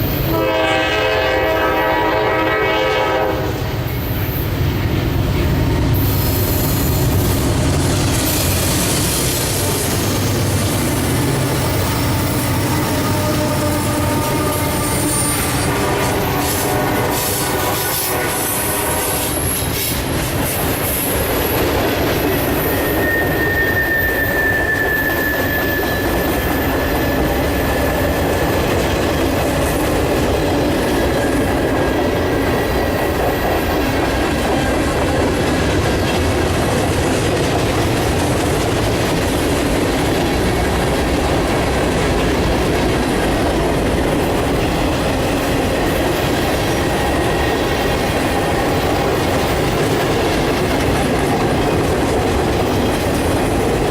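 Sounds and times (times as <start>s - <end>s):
train wheels rumbling on rail: 0.0s - 53.9s
wheel squeal: 22.3s - 28.7s.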